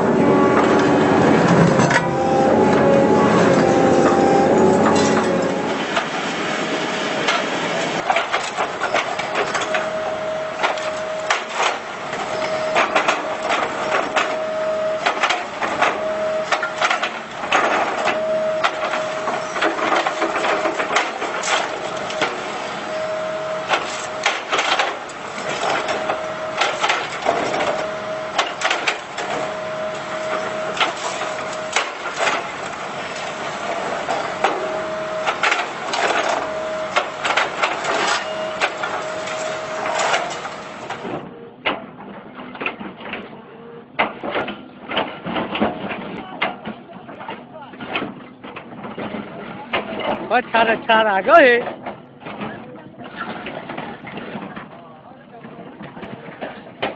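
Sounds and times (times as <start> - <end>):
steady mid-pitched tone: 0.0 - 8.0.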